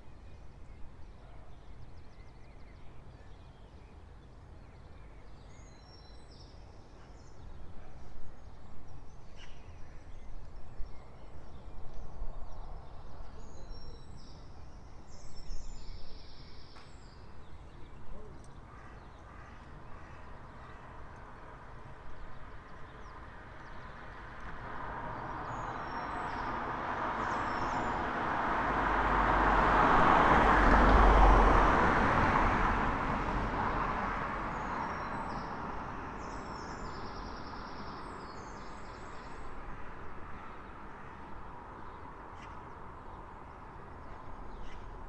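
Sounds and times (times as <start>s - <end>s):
vehicle driving past: 24.7s - 34.5s.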